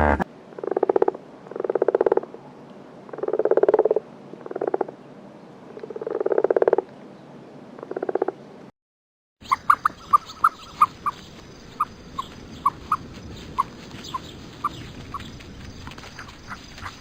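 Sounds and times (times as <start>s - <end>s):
animal making rasping calls: 9.4s - 17.0s.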